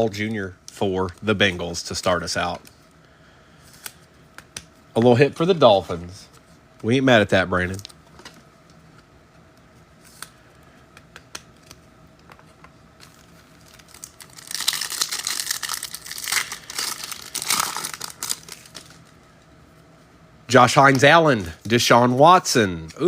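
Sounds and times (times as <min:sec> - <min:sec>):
card pack wrapper tearing: 0:13.0 - 0:19.1.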